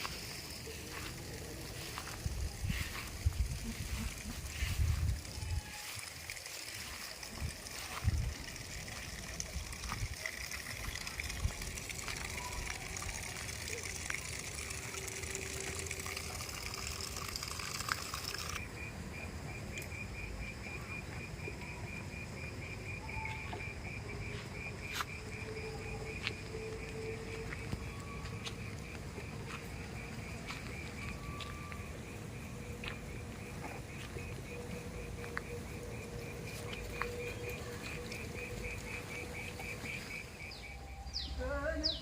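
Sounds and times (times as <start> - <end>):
running water: 0.0 - 18.6
insect trilling: 0.0 - 42.0.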